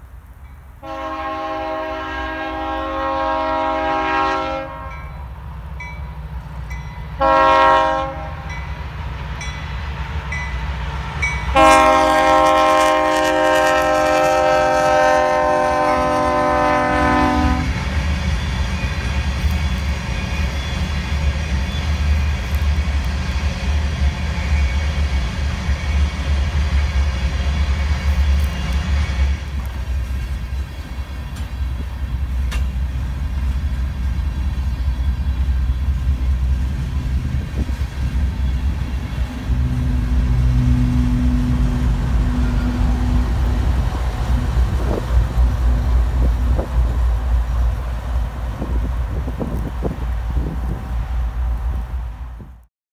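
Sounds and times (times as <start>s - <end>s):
diesel locomotive drone: 0.0s - 52.7s
freight train rumbling by: 0.0s - 52.7s
high ringing from wheels: 5.0s - 7.2s.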